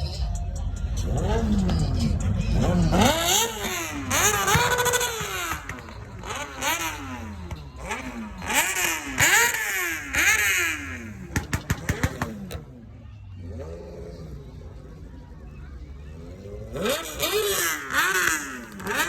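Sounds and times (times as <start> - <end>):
engine idling: 0.0 - 19.0
engine revving in blips: 0.0 - 19.0
sharp exhaust pops: 1.0 - 12.6.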